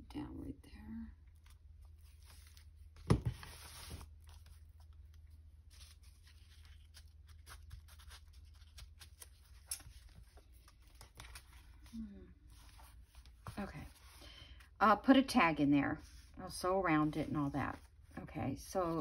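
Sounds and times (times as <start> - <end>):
paper rustling: 1.4 - 11.9.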